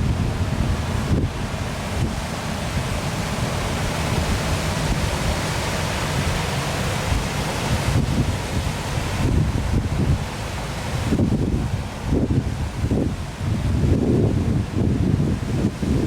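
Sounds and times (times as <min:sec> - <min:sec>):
waterfall rushing: 0:00.0 - 0:16.0
wind rumbling on microphone: 0:00.0 - 0:16.0.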